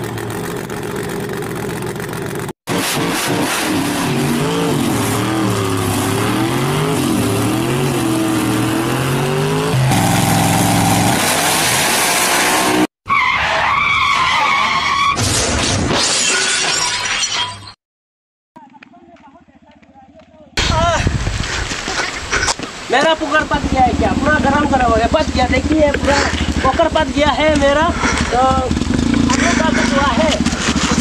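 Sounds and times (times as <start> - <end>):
car engine revving: 0.0 - 12.9, 27.8 - 31.0
tyre squeal screech: 13.1 - 15.2.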